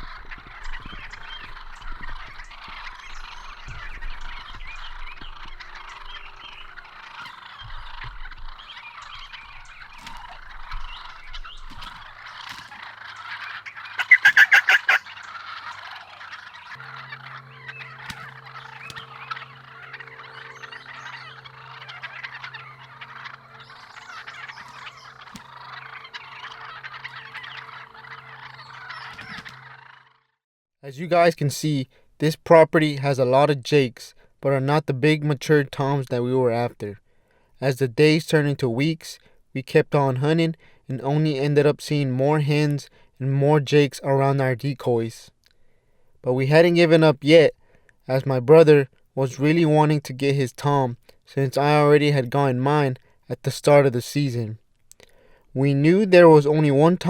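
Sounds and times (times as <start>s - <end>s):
turkey gobbling: 0.0s - 30.3s, 39.2s - 43.1s, 43.8s - 57.0s
chorus of bird calls: 0.0s - 30.4s, 40.0s - 57.0s
low steady hum: 16.8s - 28.7s.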